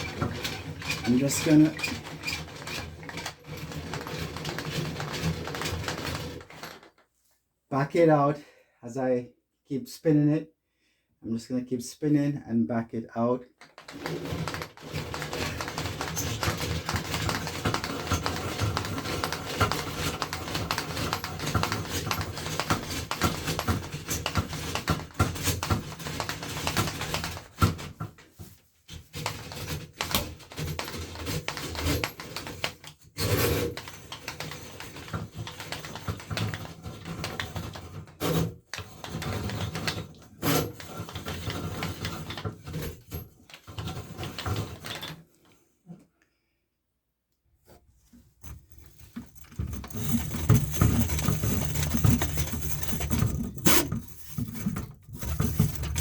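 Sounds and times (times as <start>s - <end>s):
drain snake cable rattling: 0.0s - 7.0s, 13.6s - 27.8s, 48.4s - 56.0s.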